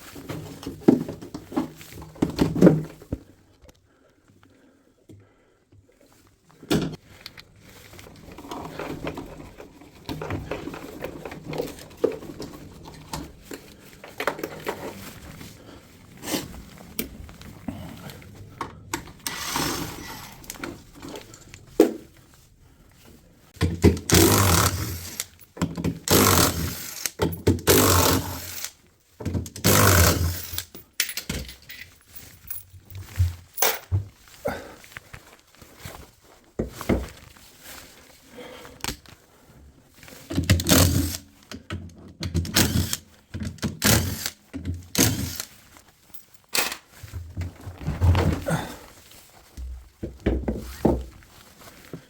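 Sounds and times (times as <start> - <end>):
metal parts and tools rattling: 7.7 - 18.4, 29.5 - 33.9, 42.4 - 48.7.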